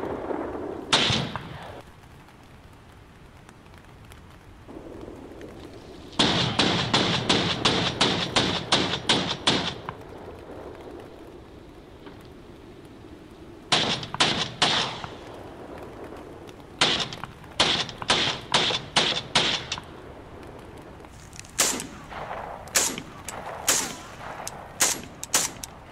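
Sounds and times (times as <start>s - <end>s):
gunshots: 0.1s - 1.8s, 6.2s - 10.0s, 13.7s - 15.3s, 16.8s - 19.9s, 21.2s - 25.9s.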